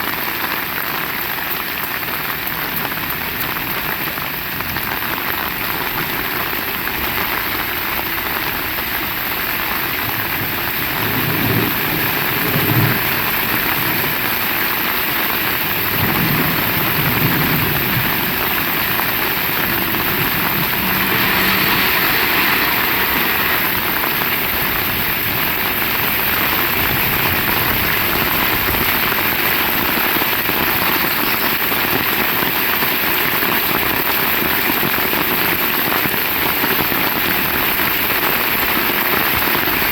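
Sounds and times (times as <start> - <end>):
heavy rain falling: 0.0 - 39.9
low rumbles: 15.7 - 28.2.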